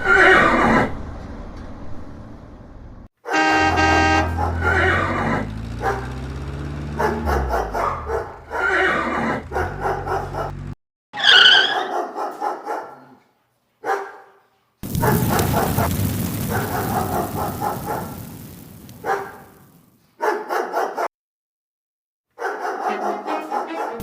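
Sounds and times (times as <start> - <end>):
horses neighing: 0.0 - 1.0, 8.5 - 9.7
low engine hum: 0.4 - 3.1, 3.7 - 10.8
dog barking: 3.2 - 6.2, 6.8 - 10.6, 11.5 - 18.2, 19.0 - 19.6, 20.2 - 21.1, 22.3 - 24.0.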